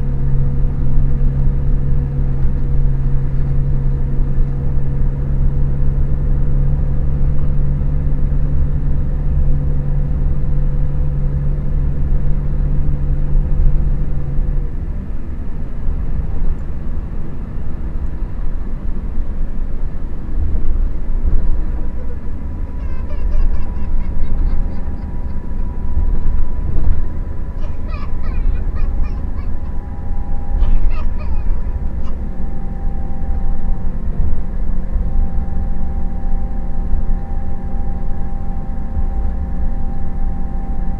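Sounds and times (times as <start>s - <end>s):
coach low rumble: 0.0s - 40.9s
steady hum: 0.0s - 40.9s.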